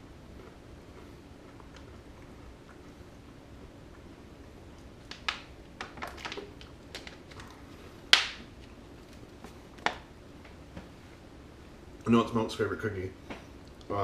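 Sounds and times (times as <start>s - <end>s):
cookie crunching while chewed: 0.3s - 10.0s.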